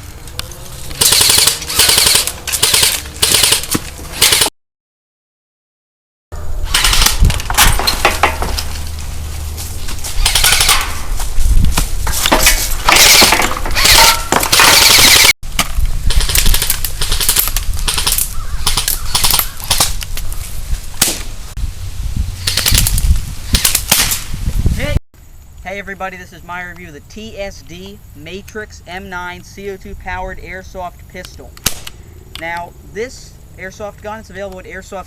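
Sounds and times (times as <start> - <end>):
rapid automatic gunfire: 1.0 - 3.6.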